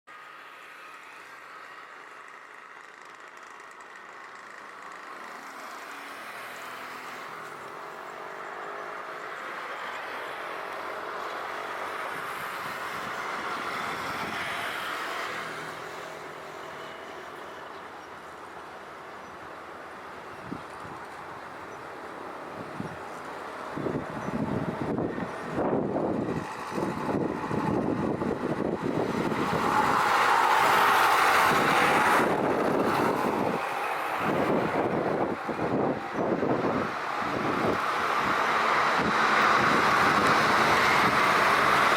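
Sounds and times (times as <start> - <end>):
jet engines rushing: 5.2 - 41.9
wind buffeting microphone: 10.3 - 16.7, 20.1 - 41.9.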